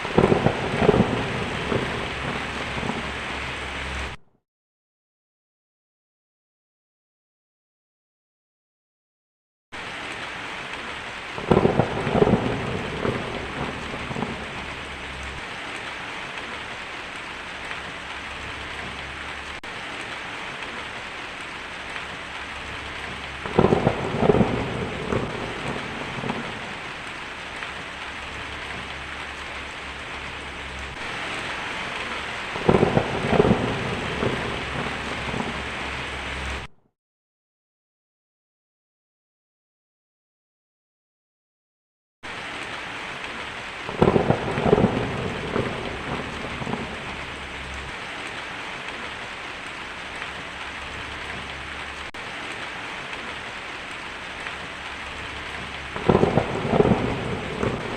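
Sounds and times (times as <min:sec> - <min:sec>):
steady rain: 0:00.0 - 0:04.2, 0:09.8 - 0:36.7, 0:42.2 - 0:57.9
thunder rumbling: 0:00.0 - 0:04.2, 0:11.1 - 0:36.7, 0:43.3 - 0:49.3, 0:50.0 - 0:57.9.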